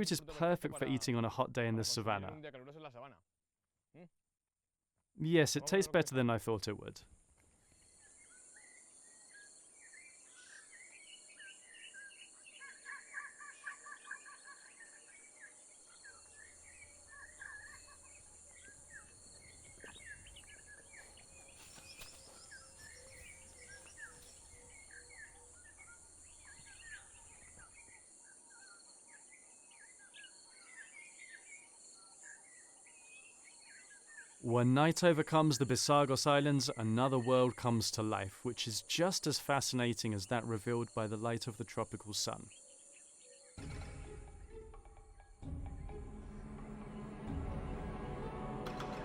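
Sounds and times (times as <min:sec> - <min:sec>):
birds chirping and calling: 0:10.0 - 0:28.7.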